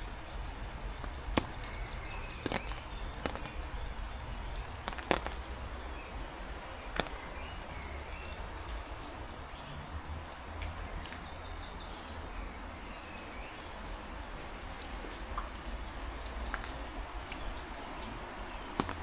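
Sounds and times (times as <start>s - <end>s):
heavy rain: 0.0s - 19.0s
sharp taps: 0.9s - 5.8s, 6.9s - 7.4s, 18.8s - 19.0s.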